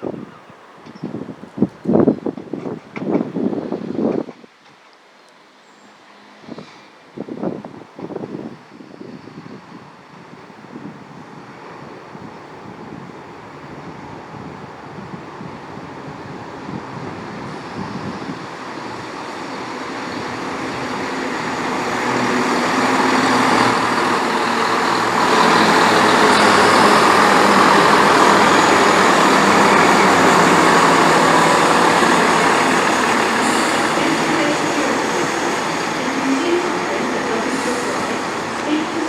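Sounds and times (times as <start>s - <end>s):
diesel train pulling in: 7.9s - 39.0s.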